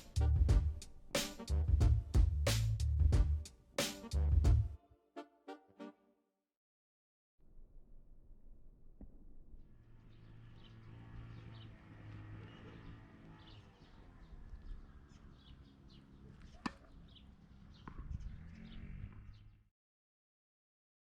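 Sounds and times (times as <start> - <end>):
birds chirping: 10.0 - 19.7.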